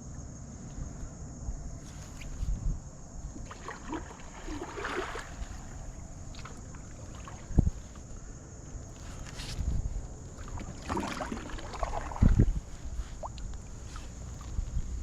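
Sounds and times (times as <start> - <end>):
water splashing around kayak: 3.2 - 8.2, 8.8 - 15.0.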